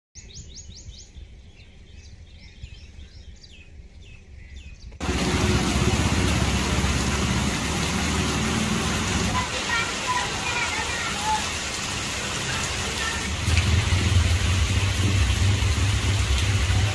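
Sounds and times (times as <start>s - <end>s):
birds chirping: 0.2s - 13.4s
heavy rain downpour: 5.0s - 16.9s
low steady rumble: 13.3s - 16.9s.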